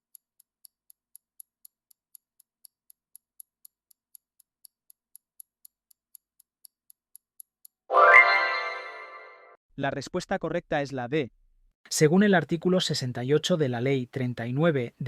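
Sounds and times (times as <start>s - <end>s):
clock-style ticking: 0.0s - 7.9s.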